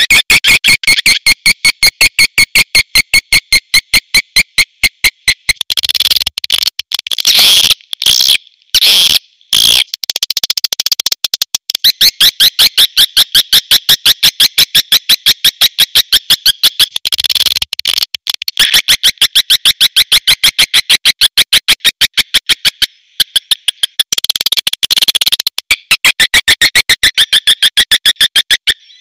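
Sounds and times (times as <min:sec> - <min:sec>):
swiftlet clicking chatter: 0:05.4 - 0:07.2, 0:09.6 - 0:12.0, 0:16.4 - 0:20.4, 0:22.2 - 0:28.7.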